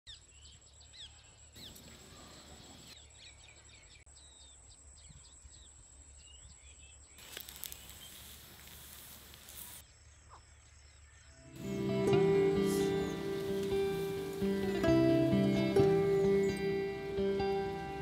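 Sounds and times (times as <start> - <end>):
small birds chirping: 0.1 - 18.0
even hiss: 7.2 - 9.8, 11.5 - 18.0.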